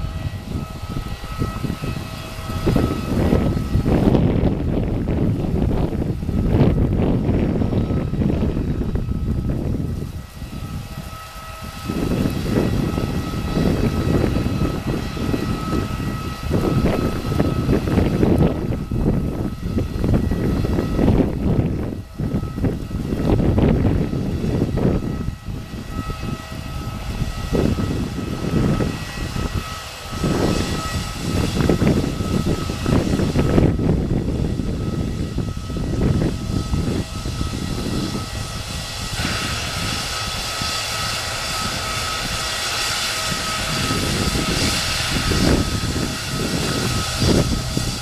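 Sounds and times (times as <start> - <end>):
jet engines whining: 0.0 - 48.0
wind on microphone: 0.0 - 48.0.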